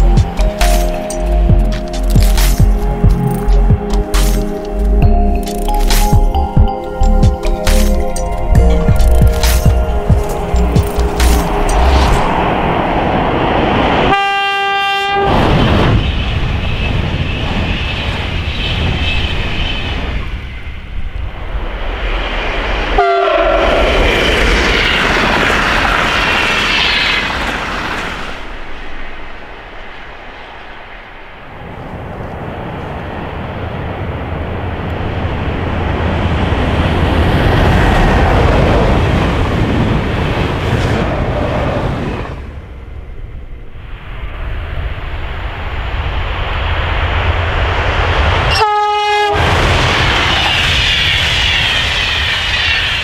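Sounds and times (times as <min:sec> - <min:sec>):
express trains passing: 0:00.0 - 0:53.0
train horn: 0:14.1 - 0:15.6, 0:23.0 - 0:23.9, 0:48.5 - 0:49.6.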